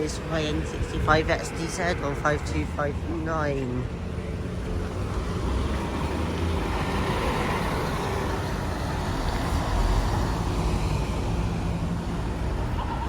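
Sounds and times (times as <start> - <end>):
street traffic: 0.0 - 13.0
bus engine passing by: 3.0 - 13.0.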